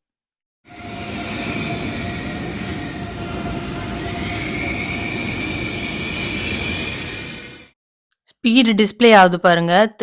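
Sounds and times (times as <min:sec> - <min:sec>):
thin electric whine: 0:00.7 - 0:07.7
electric train rumbling: 0:00.7 - 0:07.8.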